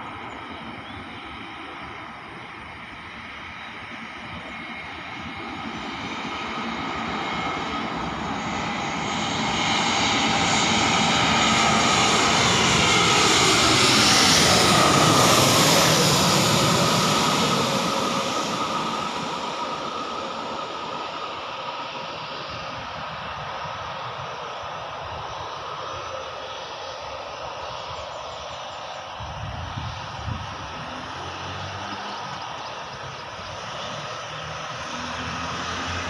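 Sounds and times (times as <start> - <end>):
jet engines passing by: 0.0 - 36.0.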